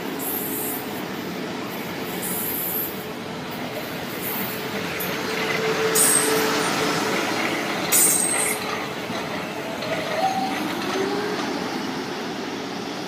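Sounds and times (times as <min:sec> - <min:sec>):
train wheels running on rails: 0:00.0 - 0:13.0.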